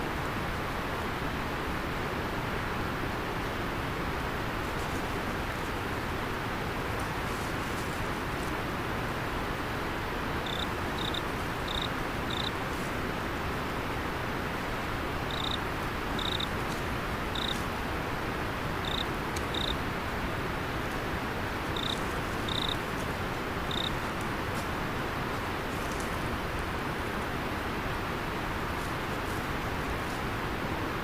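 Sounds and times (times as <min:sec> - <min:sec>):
river water rushing: 0:00.1 - 0:31.0
cricket chirping: 0:10.4 - 0:12.6, 0:15.3 - 0:15.6, 0:16.2 - 0:16.5, 0:17.3 - 0:17.6, 0:18.8 - 0:19.8, 0:21.7 - 0:22.8, 0:23.7 - 0:24.0.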